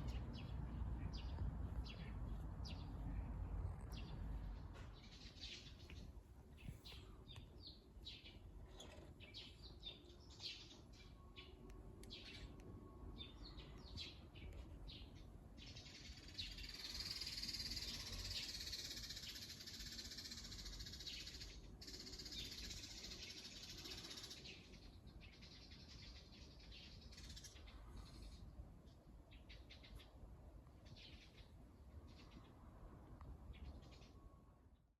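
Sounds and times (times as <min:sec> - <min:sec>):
small birds chirping: 0:00.0 - 0:12.6, 0:13.2 - 0:32.7.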